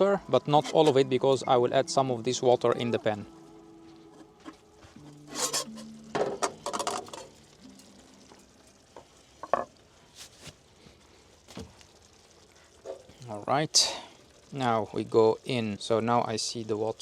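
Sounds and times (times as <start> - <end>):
water pouring and splashing: 6.3 - 15.8.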